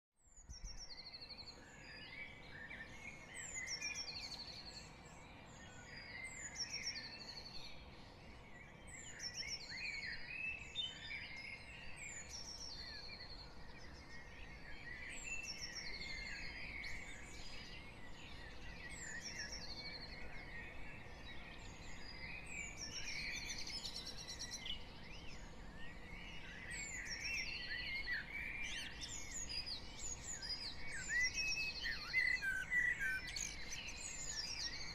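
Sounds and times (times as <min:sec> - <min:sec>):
birds singing: 0:00.2 - 0:34.9.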